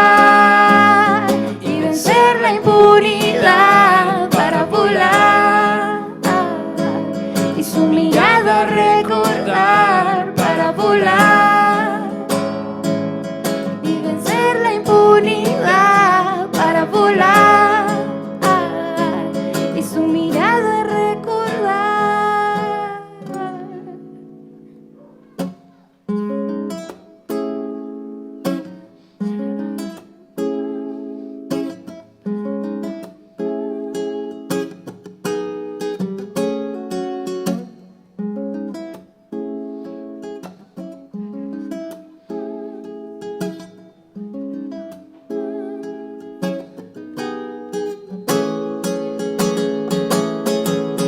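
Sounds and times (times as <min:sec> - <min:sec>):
acoustic guitar strumming chords: 0:00.0 - 0:51.0.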